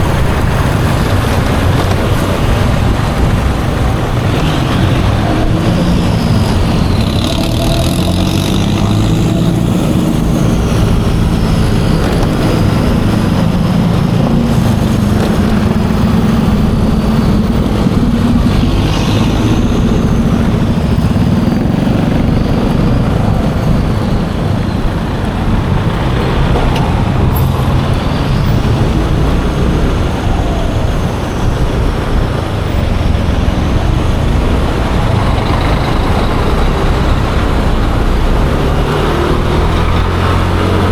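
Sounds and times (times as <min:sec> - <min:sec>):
scooter engine running: 0:00.0 - 0:30.4
road noise: 0:00.0 - 0:40.9.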